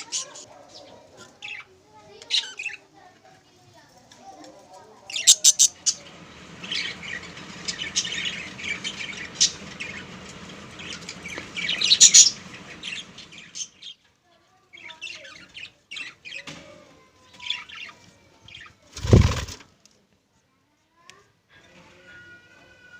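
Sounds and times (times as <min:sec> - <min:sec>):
budgerigars chirping and squawking: 0:00.0 - 0:01.7, 0:05.1 - 0:14.0.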